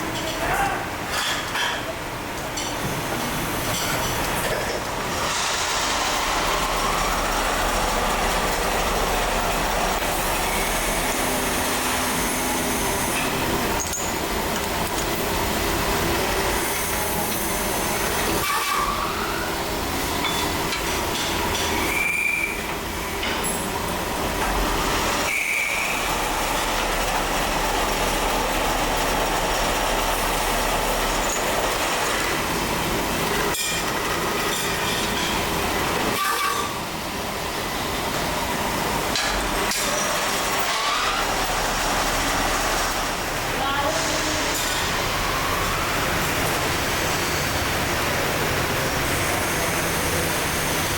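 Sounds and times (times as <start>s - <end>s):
factory machinery working metal: 0.0s - 50.9s
high squeals: 21.8s - 22.7s.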